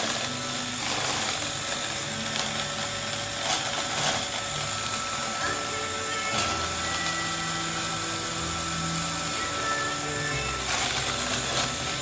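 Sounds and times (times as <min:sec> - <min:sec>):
background music: 0:00.0 - 0:12.0
robot vacuum motor whine: 0:00.0 - 0:12.0.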